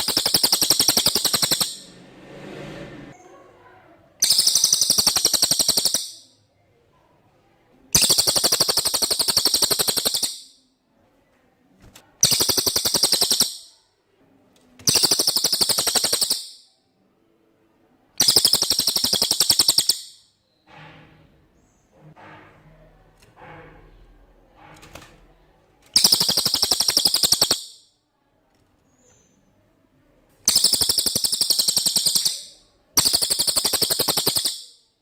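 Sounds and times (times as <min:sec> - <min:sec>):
bird singing rattling trills: 0:00.0 - 0:01.9, 0:04.2 - 0:06.4, 0:07.9 - 0:10.6, 0:12.2 - 0:13.8, 0:14.8 - 0:16.7, 0:18.2 - 0:20.6, 0:26.0 - 0:27.9, 0:30.4 - 0:34.9.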